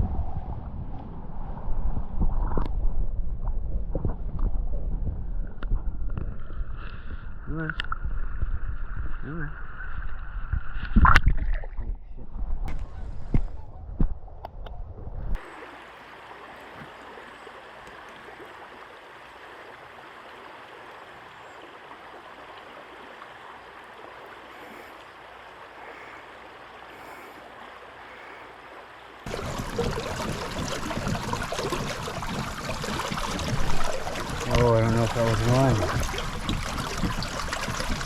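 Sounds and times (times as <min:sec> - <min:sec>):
river water rushing: 0:15.4 - 0:38.0.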